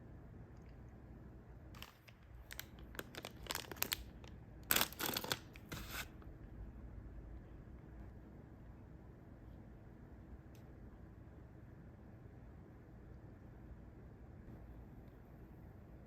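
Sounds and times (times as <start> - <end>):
snack packaging crinkling and tearing: 1.8 - 6.1.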